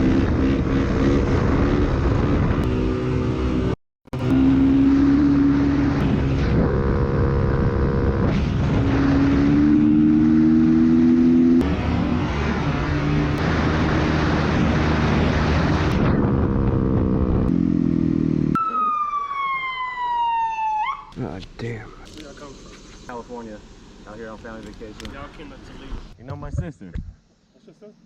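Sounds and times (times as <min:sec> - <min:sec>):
dirt bike engines revving: 0:00.0 - 0:18.9
police siren wailing: 0:18.5 - 0:21.2.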